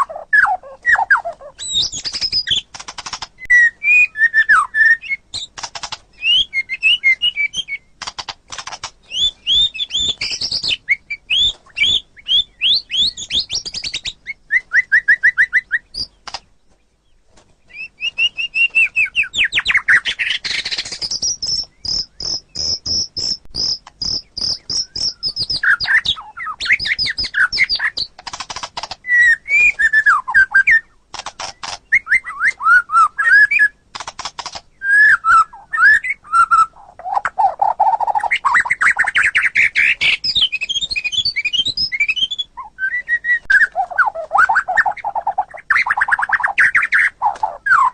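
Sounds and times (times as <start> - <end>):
songbird singing whistles and trills: 0.0 - 8.0, 9.0 - 16.4, 17.7 - 28.2, 29.0 - 33.8, 34.8 - 47.9.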